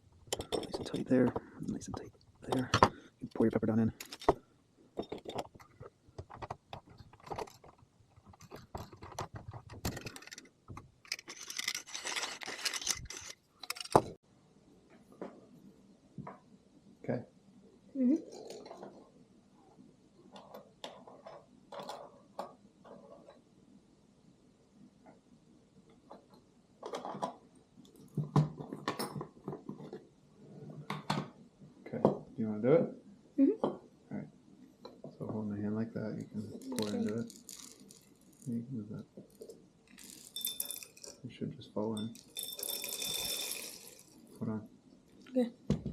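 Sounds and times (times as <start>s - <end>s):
peppercorns rattling: 36.5s - 38.5s, 39.9s - 41.2s, 42.0s - 44.4s.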